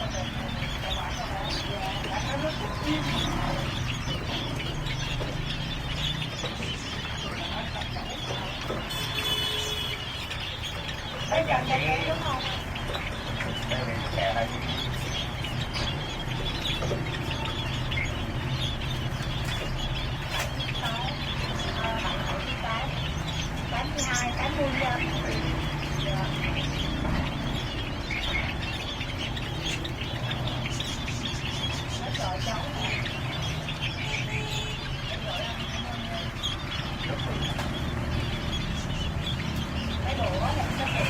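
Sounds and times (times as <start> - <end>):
cage birds chirping: 0.0 - 41.0.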